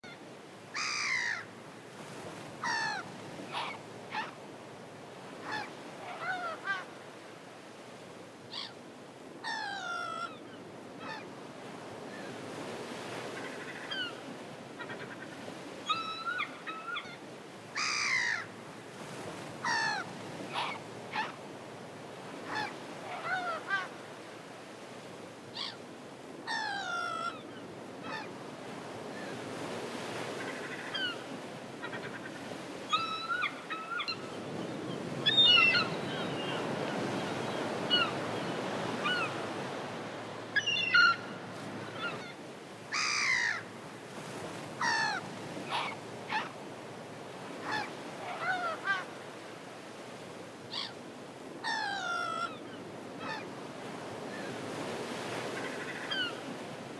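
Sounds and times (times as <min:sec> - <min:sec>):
gulls calling: 0:29.2 - 0:46.6.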